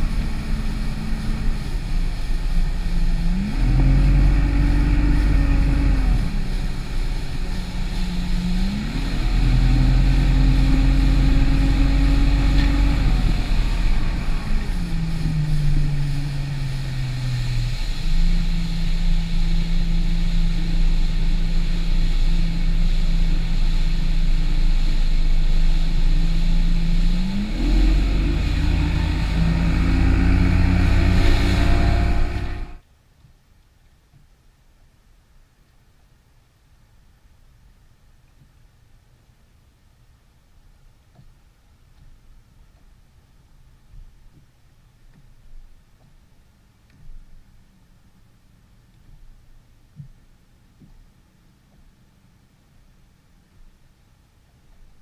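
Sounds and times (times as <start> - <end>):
outboard motor running: 0.0 - 32.8
water rushing: 0.0 - 32.8.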